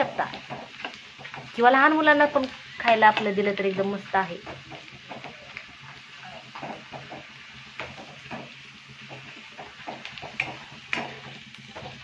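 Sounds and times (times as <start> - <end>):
potato slices sizzling in oil: 0.0 - 12.0
metal spatula scraping a pan: 6.1 - 12.0.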